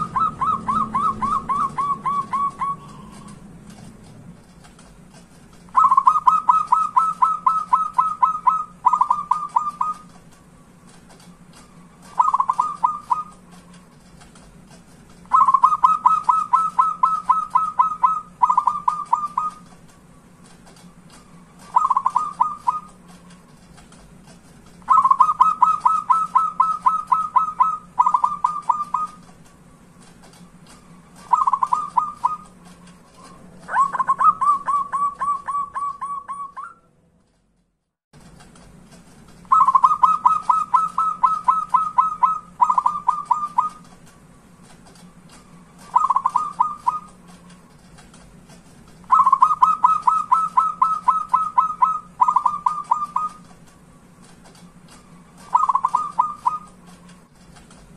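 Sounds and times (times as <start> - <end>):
dove cooing: 0.0 - 3.4, 5.7 - 10.2, 12.0 - 13.8, 15.3 - 19.7, 21.6 - 23.1, 24.8 - 29.3, 31.1 - 32.6, 33.2 - 36.8, 39.5 - 43.9, 45.7 - 47.3, 49.1 - 53.5, 55.1 - 56.8
faint steady hum: 0.0 - 57.9.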